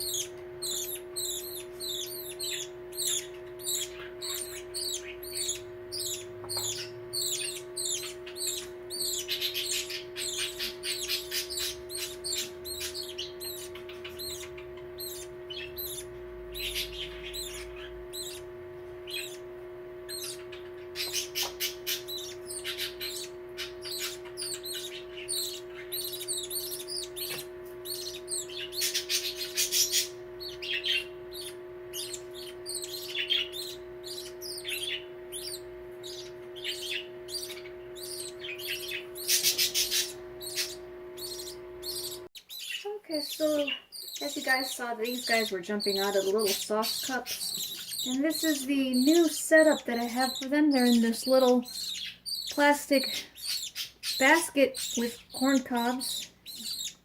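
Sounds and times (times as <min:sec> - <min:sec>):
low hum: 0:00.0 - 0:42.3
bird chicks chirping and squawking: 0:00.0 - 0:57.0.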